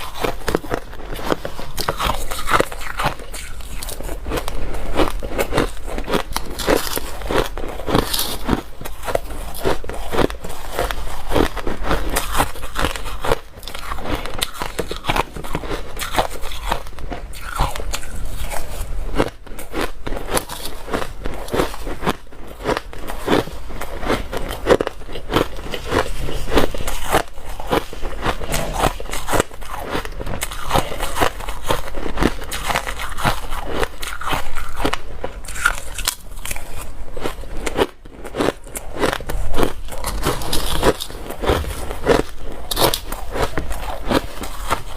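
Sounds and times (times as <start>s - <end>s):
ice being chewed: 0.0s - 44.9s.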